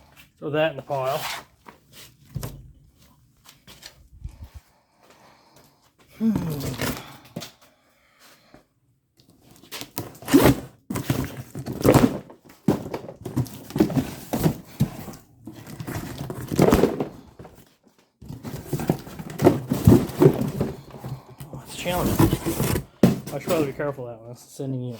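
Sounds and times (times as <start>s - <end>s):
rummaging through metal parts: 18.2s - 23.9s.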